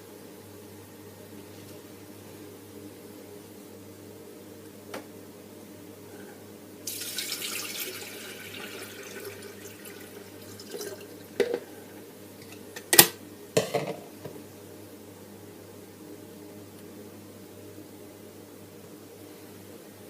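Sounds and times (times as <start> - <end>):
water running from tap: 6.9 - 11.4.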